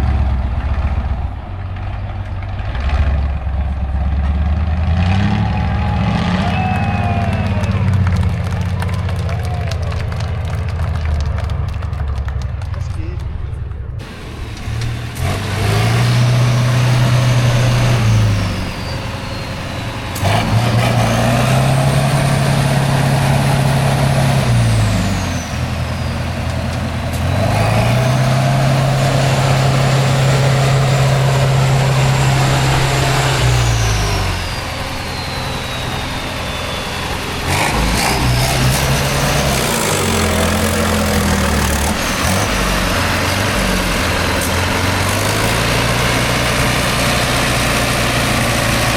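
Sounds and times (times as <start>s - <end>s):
diesel truck engine revving: 0.0s - 48.9s
high whistle: 5.7s - 8.2s, 17.8s - 20.7s, 31.0s - 40.2s.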